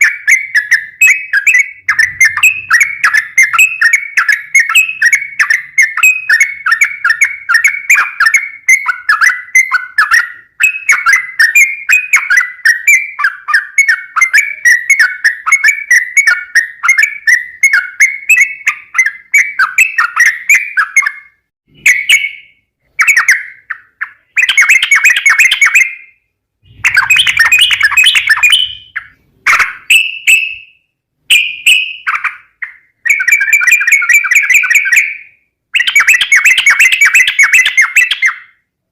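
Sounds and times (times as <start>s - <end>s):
bird singing chattering phrases: 0.0s - 30.7s, 31.3s - 38.5s.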